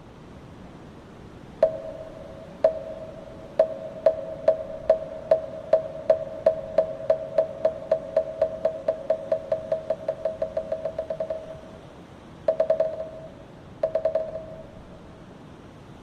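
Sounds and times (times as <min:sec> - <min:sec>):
hollow wooden knocks: 0:01.6 - 0:11.7, 0:12.5 - 0:14.6.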